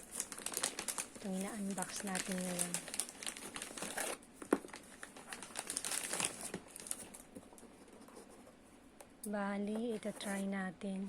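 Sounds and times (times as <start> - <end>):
packaging crinkling and tearing: 0.0 - 7.6.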